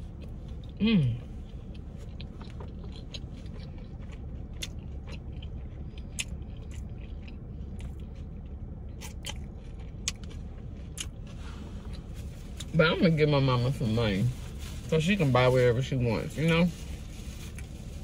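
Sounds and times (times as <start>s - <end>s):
person chewing food: 0.0s - 12.6s
low hum: 0.0s - 18.0s.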